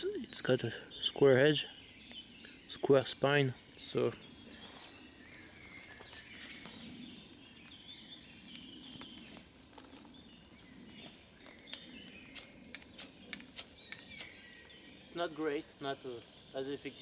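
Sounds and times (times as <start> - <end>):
low steady hiss: 0.0 - 17.0
small birds chirping: 0.0 - 17.0.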